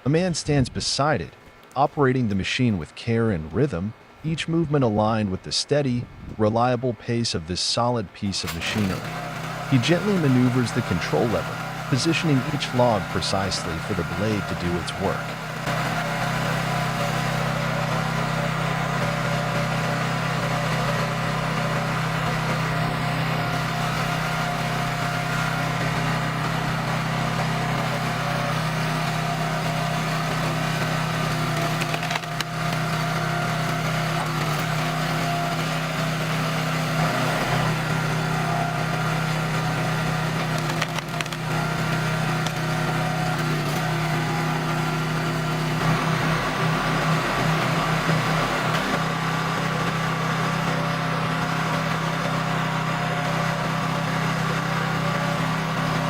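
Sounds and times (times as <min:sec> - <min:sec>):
log splitter engine running: 0:06.5 - 0:56.0
wood splitting cracks: 0:31.3 - 0:32.9, 0:40.4 - 0:41.5.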